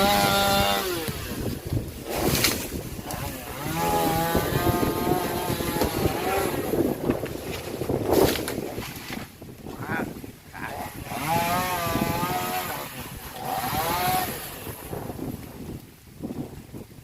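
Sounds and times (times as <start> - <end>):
chainsaw revving: 0.0 - 7.1, 10.6 - 15.2.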